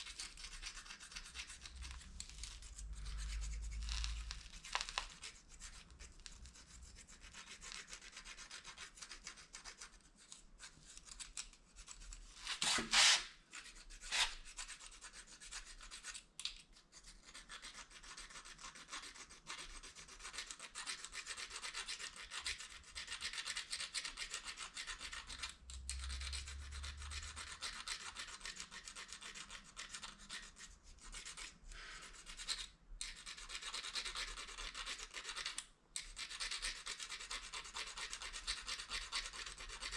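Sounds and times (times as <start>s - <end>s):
plastic fork scraping plastic spoon: 0.0s - 14.9s.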